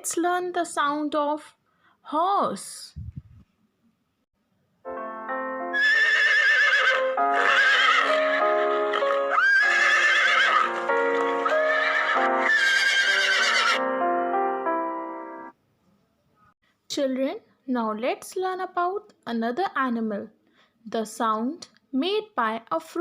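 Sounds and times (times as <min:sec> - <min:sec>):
background music with held notes: 0:04.9 - 0:15.6
horse whinnying: 0:05.8 - 0:13.8.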